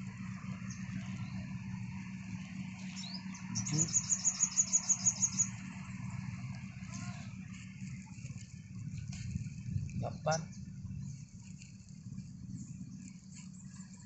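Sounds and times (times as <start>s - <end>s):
steady low hum: 0.0s - 14.0s
short rising bird chirp: 2.8s - 5.6s.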